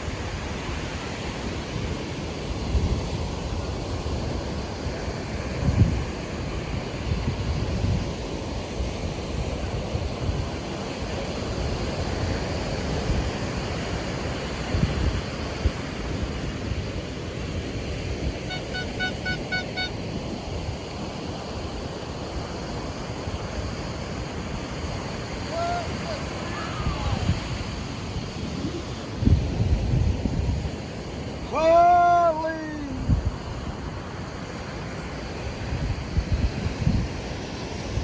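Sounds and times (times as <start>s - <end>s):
surf washing on beach: 0.0s - 38.0s
wind buffeting microphone: 2.3s - 18.6s, 23.2s - 31.2s
short high beeps: 18.5s - 20.4s.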